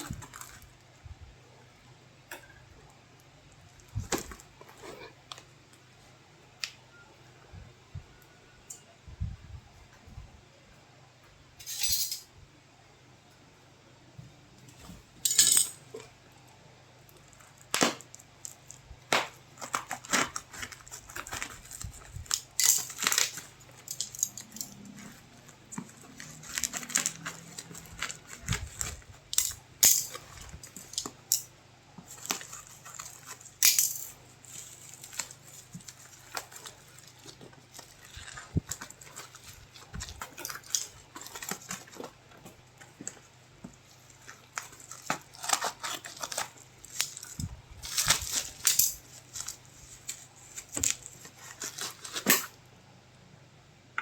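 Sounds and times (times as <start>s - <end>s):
cardboard and plastic rustling: 0.0s - 1.0s, 3.6s - 5.5s, 17.1s - 31.3s, 31.9s - 52.6s
faint steady hum: 0.0s - 54.0s.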